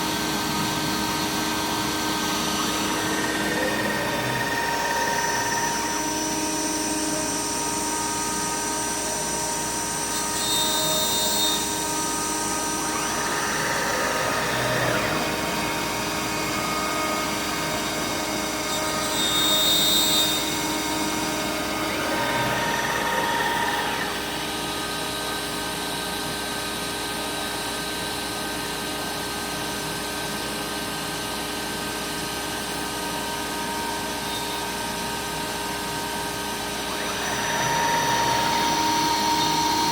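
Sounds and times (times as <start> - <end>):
cutting noise: 0.0 - 6.3, 10.1 - 24.4
router spindle whining: 0.0 - 28.0, 30.2 - 39.9.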